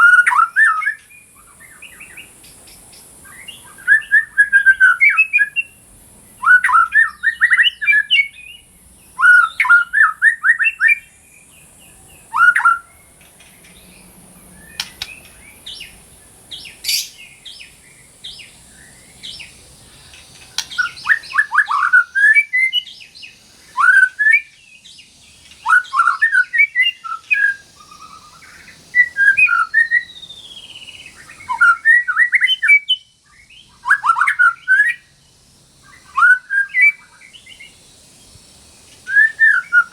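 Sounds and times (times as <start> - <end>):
bird singing rapid sweeping notes: 0.0 - 39.9
faint high hiss: 0.0 - 39.9.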